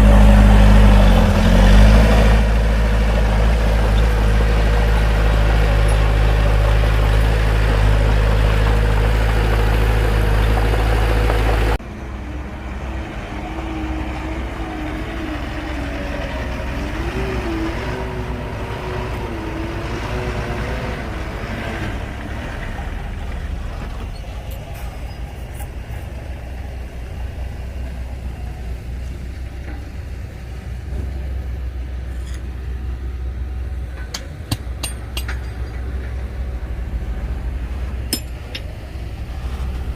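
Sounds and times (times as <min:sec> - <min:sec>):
wavering engine whine: 0:00.0 - 0:29.8
bulldozer diesel engine running: 0:00.0 - 0:39.9
sharp metallic clinks: 0:38.1 - 0:38.7.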